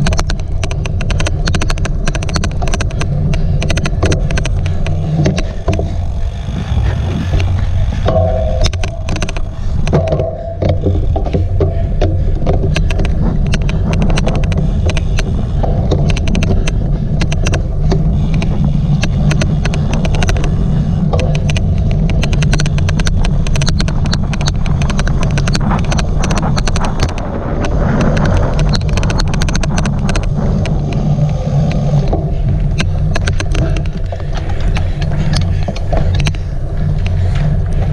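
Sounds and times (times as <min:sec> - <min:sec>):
bike clicking: 0:00.0 - 0:37.9
bike rumbling over rough ground: 0:00.0 - 0:37.9.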